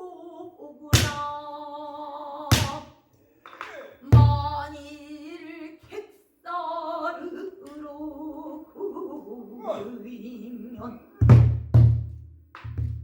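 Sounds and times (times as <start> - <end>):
woman singing long wavering notes: 6.5 - 11.2.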